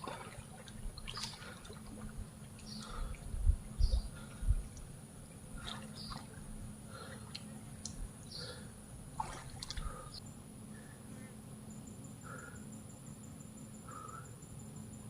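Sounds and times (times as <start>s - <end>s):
water dripping and splashing: 0.0s - 3.0s, 9.2s - 10.1s
bird chirps: 2.6s - 3.2s, 5.9s - 6.3s
insect trill: 10.0s - 15.0s.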